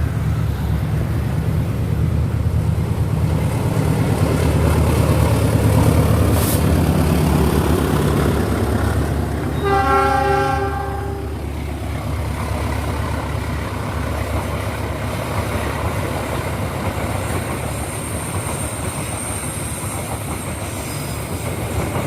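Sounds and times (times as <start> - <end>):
train engine drone: 0.0 - 22.0
locomotive horn blast: 9.5 - 11.4
train wheel clatter: 12.0 - 22.0.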